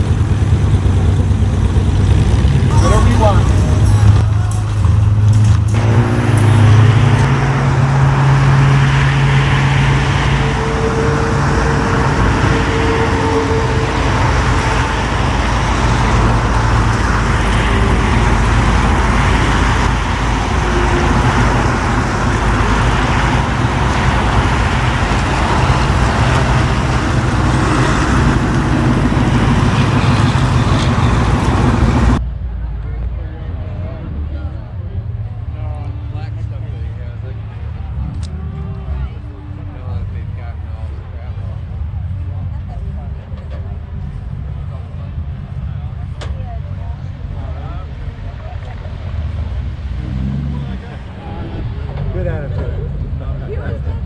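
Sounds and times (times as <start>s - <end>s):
car engine humming: 0.0s - 32.2s, 36.2s - 54.0s
held low tones: 0.0s - 32.5s
traffic noise: 0.0s - 54.0s.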